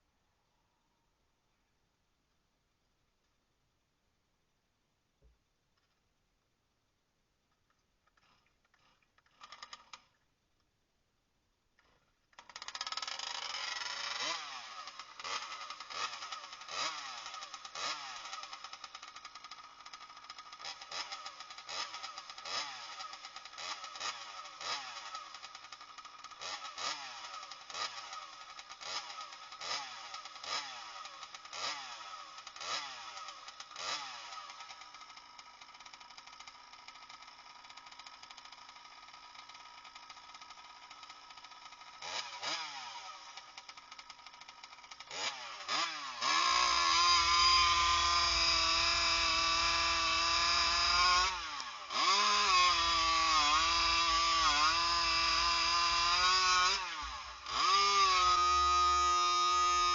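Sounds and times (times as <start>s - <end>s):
scooter engine revving: 12.5s - 59.9s.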